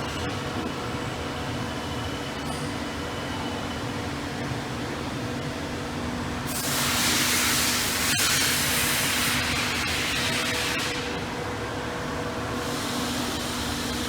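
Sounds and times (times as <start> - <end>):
laser cutting machine humming: 6.5 - 14.0.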